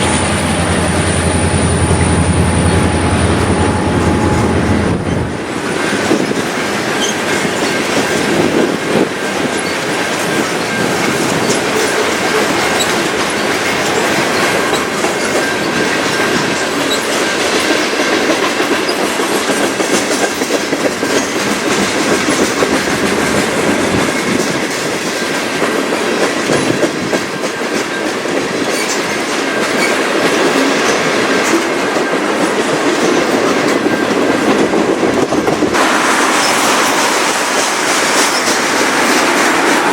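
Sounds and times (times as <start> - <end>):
thin high tone: 0.0 - 5.6
train wheels clattering over rails: 0.0 - 39.9.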